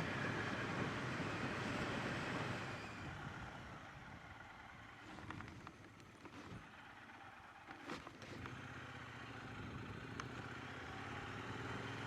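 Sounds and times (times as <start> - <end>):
motorcycle engine: 6.2 - 12.0.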